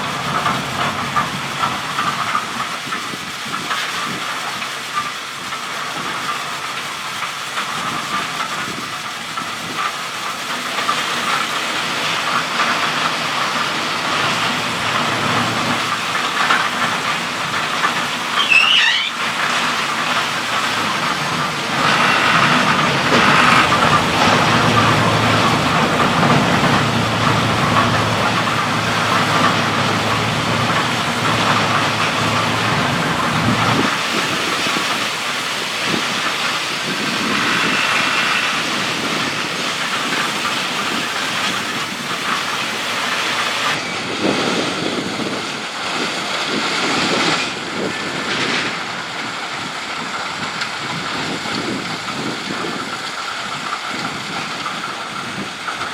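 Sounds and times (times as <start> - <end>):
vehicle running: 0.0 - 3.0, 12.6 - 43.8.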